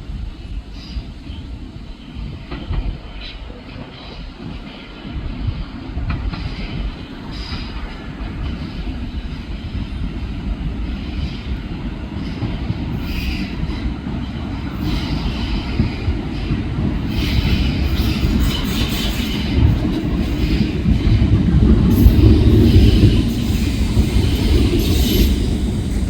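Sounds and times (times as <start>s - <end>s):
train rumbling along rails: 0.0s - 26.0s
high-pitched wheel noise: 21.9s - 26.0s.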